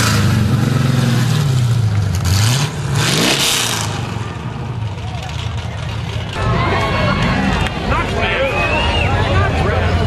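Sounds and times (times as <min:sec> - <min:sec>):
car engine revving: 0:00.0 - 0:06.5.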